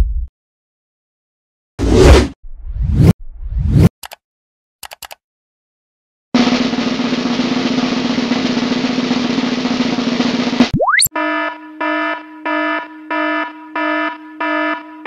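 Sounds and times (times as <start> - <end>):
short clicks: 4.8 - 5.2
snare drum roll: 6.4 - 10.7.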